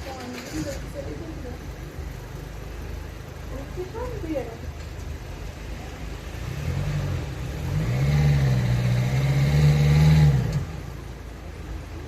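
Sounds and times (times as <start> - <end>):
vehicle engine revving: 6.2 - 11.1.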